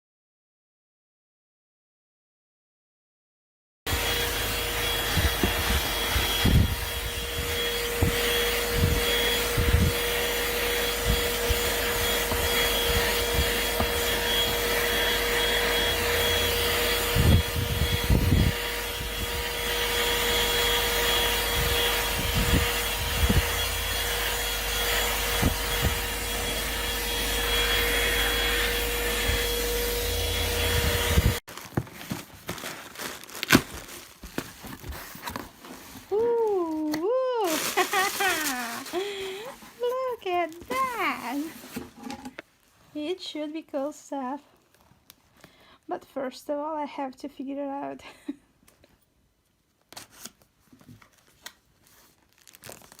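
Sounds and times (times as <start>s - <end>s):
handheld vacuum motor whine: 3.9s - 32.2s, 34.3s - 42.3s.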